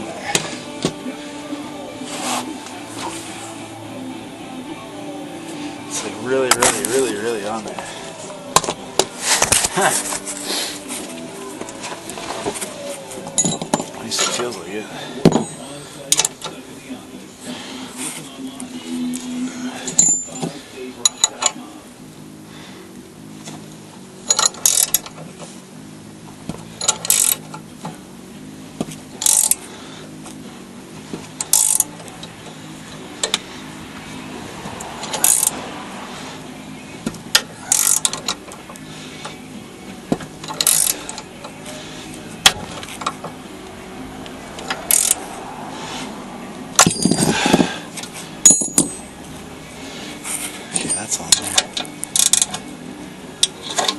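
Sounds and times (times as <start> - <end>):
ratchet wrench clicking: 24.3 - 25.2, 26.8 - 27.6, 29.2 - 29.6, 31.4 - 32.4, 35.0 - 35.6, 37.2 - 38.4, 40.4 - 41.3, 44.6 - 45.3, 51.8 - 52.6.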